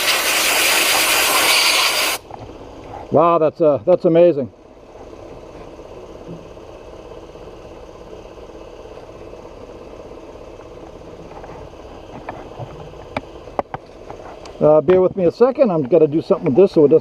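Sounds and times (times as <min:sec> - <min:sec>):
sand blast gun hissing: 0:00.0 - 0:02.2
machine hum: 0:04.5 - 0:14.9.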